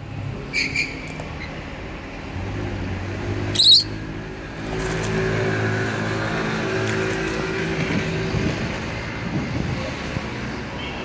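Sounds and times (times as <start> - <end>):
lovebird squawk: 3.6 - 4.0.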